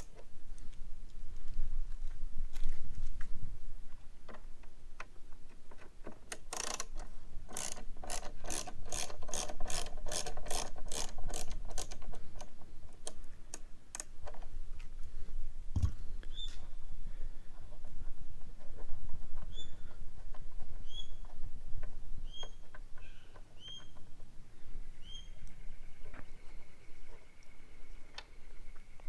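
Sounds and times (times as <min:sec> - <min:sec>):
ratchet driver clicking: 0:06.3 - 0:12.5.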